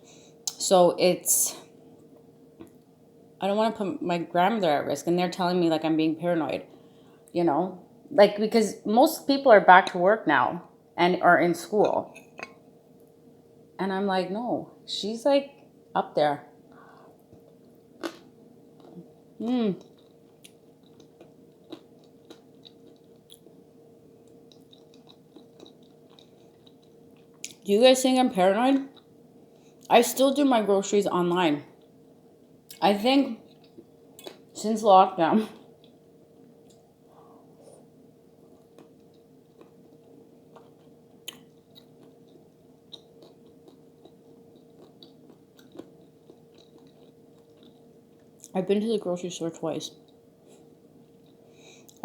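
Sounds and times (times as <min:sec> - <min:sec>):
chewing food: 0:16.8 - 0:27.7, 0:33.4 - 0:34.6, 0:35.6 - 0:36.9, 0:37.6 - 0:48.6, 0:49.9 - 0:52.0.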